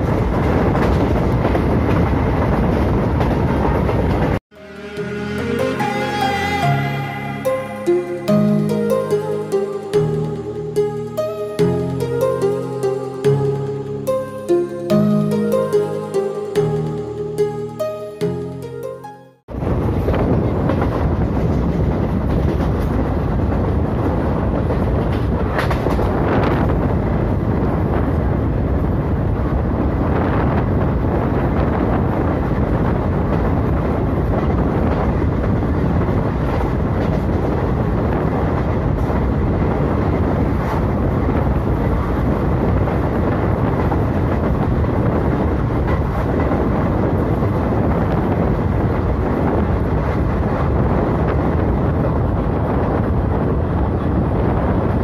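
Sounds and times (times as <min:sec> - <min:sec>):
train wheels rumbling on rails: 0:00.0 - 0:04.4, 0:19.6 - 0:55.0
wind: 0:00.0 - 0:55.0.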